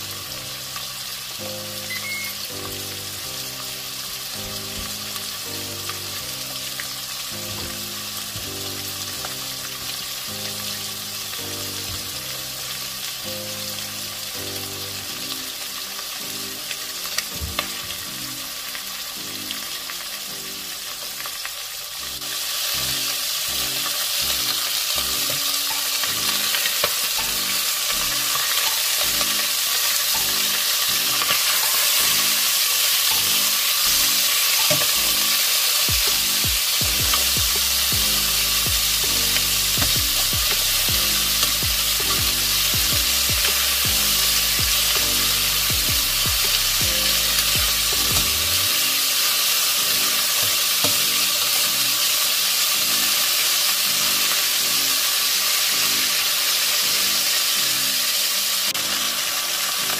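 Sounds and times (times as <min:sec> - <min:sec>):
chicken sizzling in hot oil: 0:00.0 - 0:59.9.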